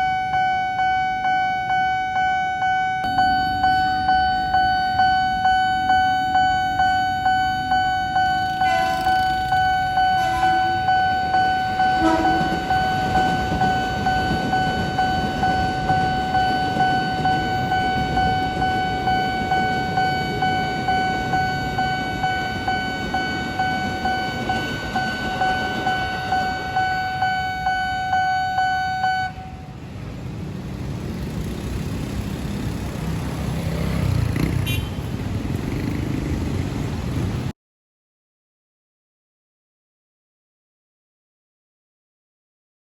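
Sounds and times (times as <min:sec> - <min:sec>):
railroad crossing bell ringing: 0:00.0 - 0:30.0
train rumbling past: 0:07.6 - 0:27.8, 0:29.4 - 0:37.5
train horn toots: 0:08.4 - 0:13.1.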